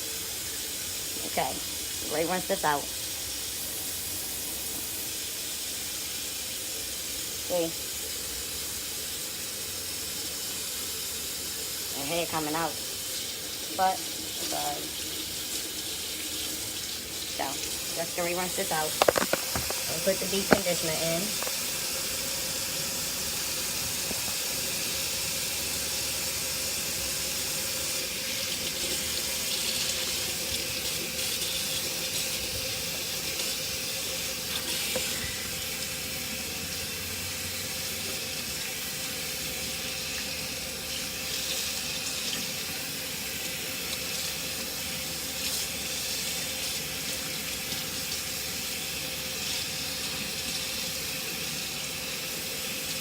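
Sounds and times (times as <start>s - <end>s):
tap water splashing: 18.8s - 22.0s, 23.8s - 24.6s, 34.4s - 35.6s.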